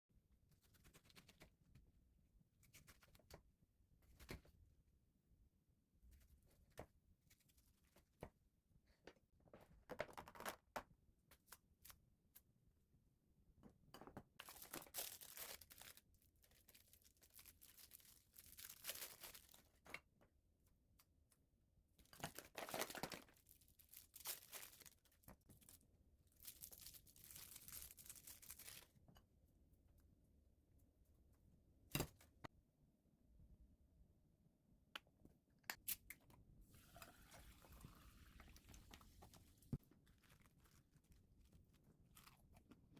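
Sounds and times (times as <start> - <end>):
crinkling and tearing: 14.4 - 19.7.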